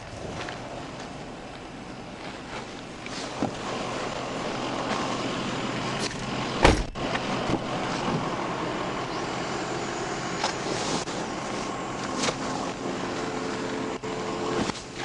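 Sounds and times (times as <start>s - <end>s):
vehicle and road noise: 0.0s - 15.0s
loud thump: 6.6s - 7.7s.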